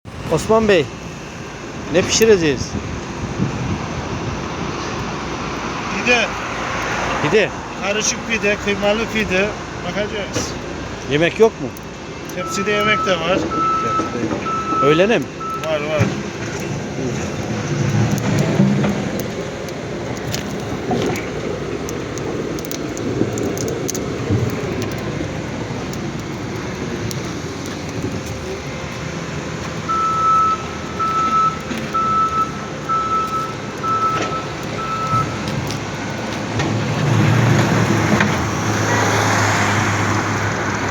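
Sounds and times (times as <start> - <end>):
traffic noise: 0.0 - 40.9
low engine hum: 0.1 - 40.9
short high beeps: 29.9 - 35.3.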